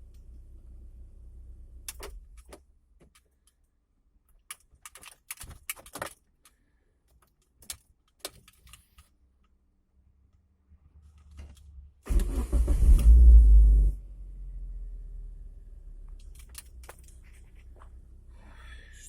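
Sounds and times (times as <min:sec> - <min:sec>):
car keys clicking and jangling: 0:04.3 - 0:06.4, 0:16.2 - 0:17.4.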